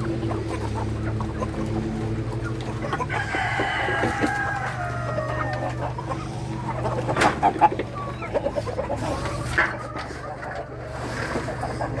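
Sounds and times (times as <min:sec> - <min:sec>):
chicken clucking: 0:00.0 - 0:12.0
rooster crowing: 0:03.0 - 0:05.9.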